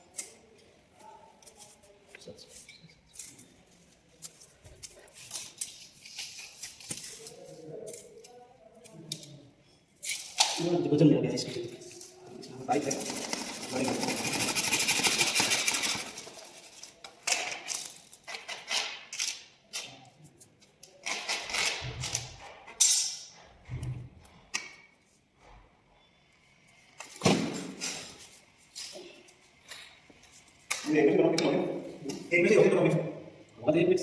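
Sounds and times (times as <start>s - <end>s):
tools clicking and scraping: 0.0s - 9.4s, 10.0s - 10.7s, 11.6s - 25.0s.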